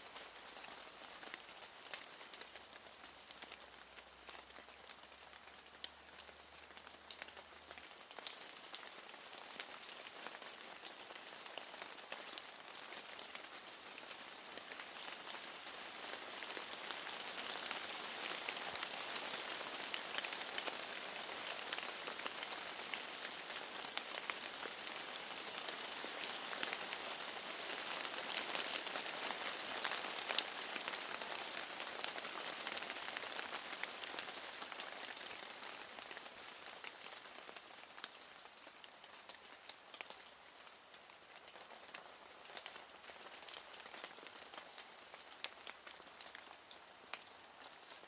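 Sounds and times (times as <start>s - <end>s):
rain falling against a window: 0.0s - 48.0s.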